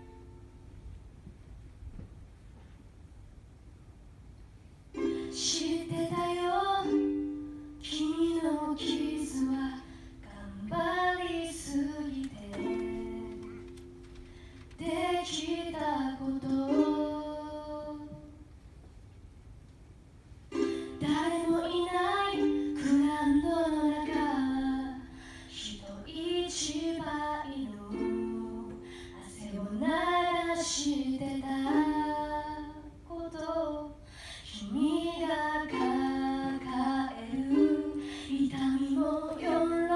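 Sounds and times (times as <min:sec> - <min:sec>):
ukulele: 0:00.0 - 0:03.0, 0:04.0 - 0:39.9
woman singing: 0:05.1 - 0:13.7, 0:14.8 - 0:18.4, 0:20.8 - 0:39.9.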